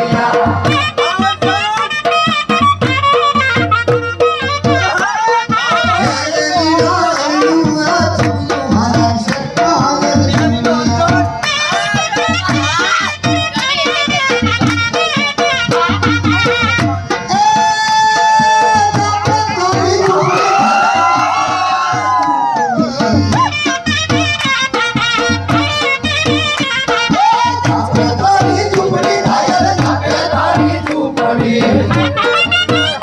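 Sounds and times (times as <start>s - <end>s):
steady drum beat: 0.0s - 33.0s.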